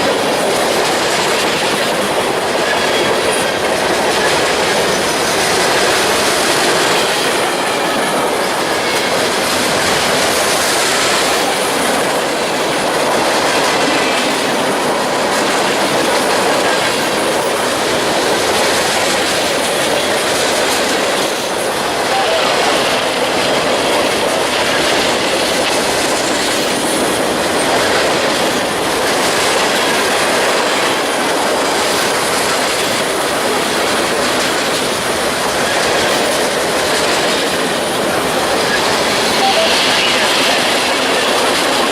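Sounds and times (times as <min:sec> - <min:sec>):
train wheels clattering over rail joints: 0:00.0 - 0:22.0, 0:22.6 - 0:39.4.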